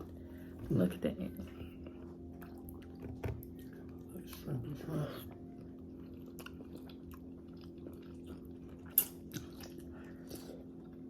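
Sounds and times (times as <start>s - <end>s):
person chewing: 2.0s - 4.5s, 5.3s - 11.0s.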